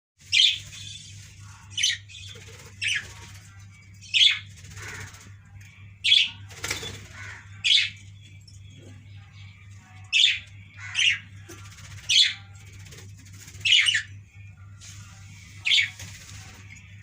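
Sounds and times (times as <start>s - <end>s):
steady low hum: 0.2s - 17.0s
budgerigars chirping chatter: 0.3s - 5.4s, 9.9s - 13.0s, 13.6s - 14.2s, 15.6s - 16.6s
budgerigars sharp harsh calls: 4.2s - 5.2s, 10.2s - 11.3s.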